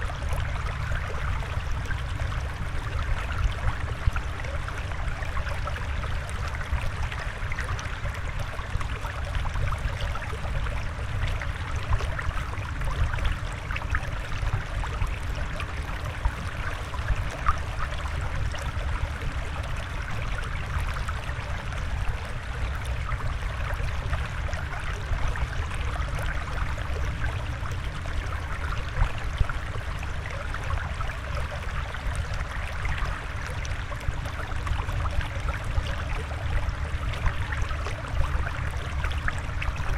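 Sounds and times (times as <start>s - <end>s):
water flowing and trickling: 0.0s - 39.9s.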